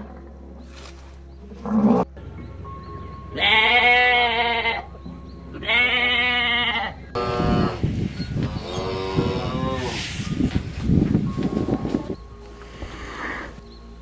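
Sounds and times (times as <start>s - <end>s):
cow mooing: 1.6s - 2.1s
sheep bleating: 3.4s - 4.9s, 5.6s - 7.8s.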